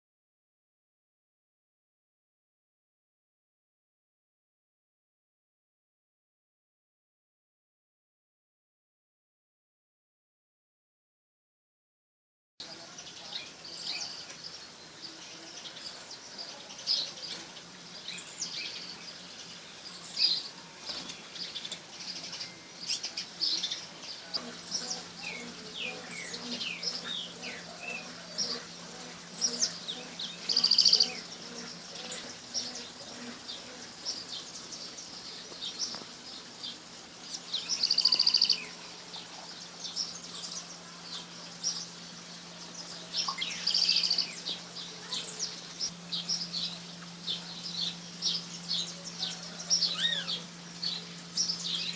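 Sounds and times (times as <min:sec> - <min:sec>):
faint steady low hum: 0:12.6 - 0:51.9
songbirds chirping and calling: 0:12.6 - 0:51.9.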